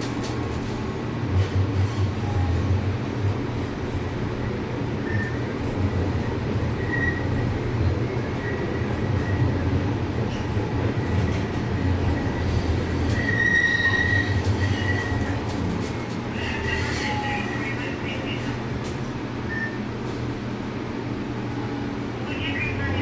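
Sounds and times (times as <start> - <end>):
train rumbling on track: 0.0 - 23.0
wheels squealing: 6.8 - 7.3, 12.1 - 15.4.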